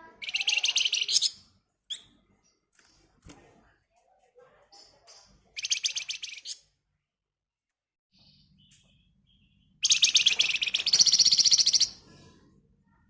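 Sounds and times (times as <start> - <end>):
songbird chirping and trilling: 0.0 - 3.1, 4.5 - 6.8, 8.2 - 12.2.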